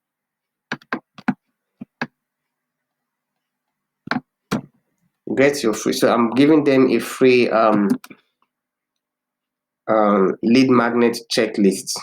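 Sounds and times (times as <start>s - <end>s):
computer keyboard taps: 0.7s - 2.2s, 4.1s - 4.7s.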